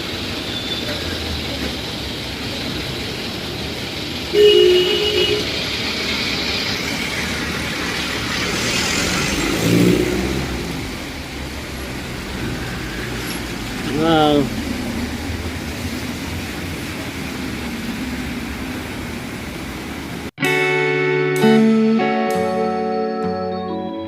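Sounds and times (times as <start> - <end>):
passing vehicles: 0.0 - 20.3
two-note horn honk: 4.3 - 5.5
vehicle engine passing: 4.8 - 20.2.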